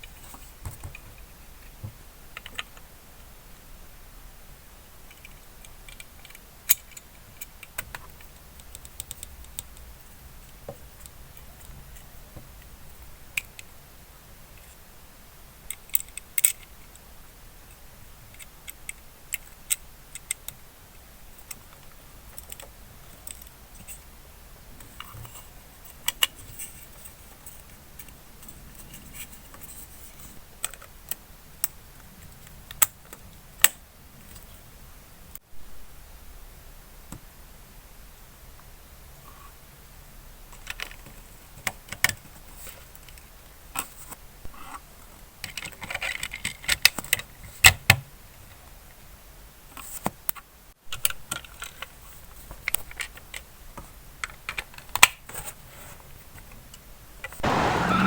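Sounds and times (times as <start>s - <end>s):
model car parts clicking: 54.2s - 55.2s.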